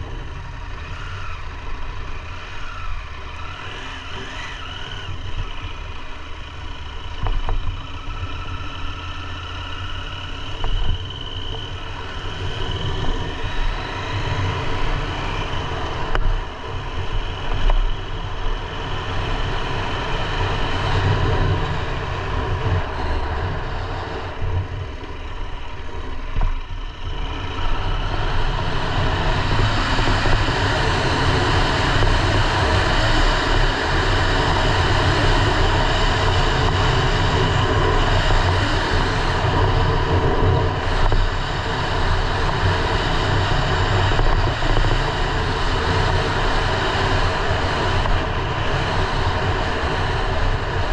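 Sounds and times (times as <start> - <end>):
motorcycle engine running: 0.0 - 50.9
wind rush on microphone: 10.2 - 50.9.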